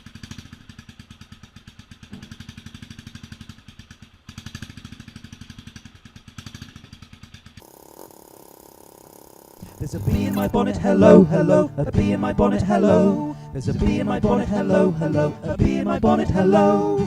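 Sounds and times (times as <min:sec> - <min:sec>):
motorcycle engine fast idle: 0:00.0 - 0:10.7
music: 0:10.1 - 0:17.0.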